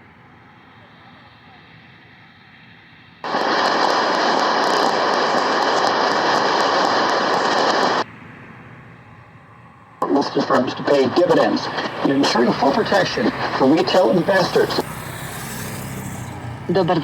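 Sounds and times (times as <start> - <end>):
faint hiss: 3.2 - 8.0
loud even rushing noise: 3.2 - 8.0
shortwave radio static: 3.2 - 8.0, 10.0 - 15.0, 16.7 - 17.0.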